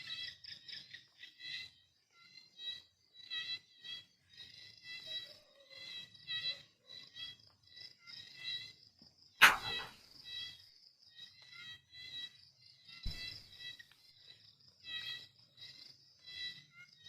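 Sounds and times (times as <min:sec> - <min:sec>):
crickets chirping: 0:00.0 - 0:17.0
sharp click: 0:09.4 - 0:09.9.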